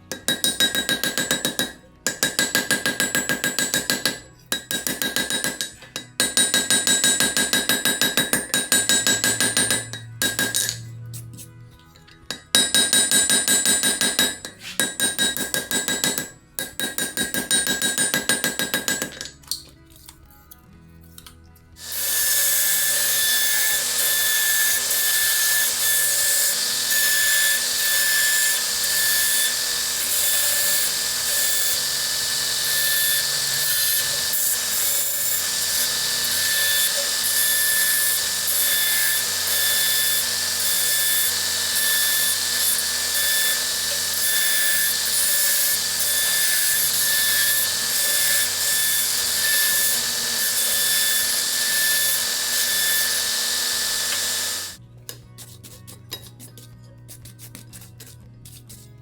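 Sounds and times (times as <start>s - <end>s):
power tool high whine: 21.8s - 54.8s.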